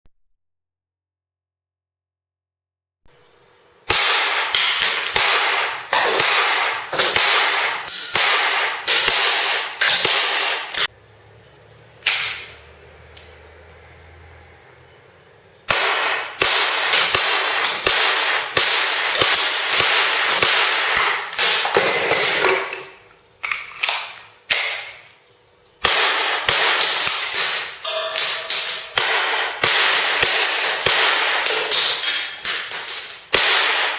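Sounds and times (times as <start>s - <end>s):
cap gun firing sharp bangs: 3.8s - 10.9s, 12.0s - 12.6s, 15.7s - 25.2s, 25.8s - 33.9s.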